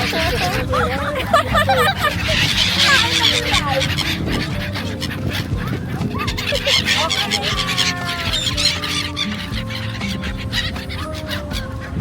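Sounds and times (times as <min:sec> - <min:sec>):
flock of birds calling: 0:00.0 - 0:12.0
murmur of people: 0:00.0 - 0:12.0.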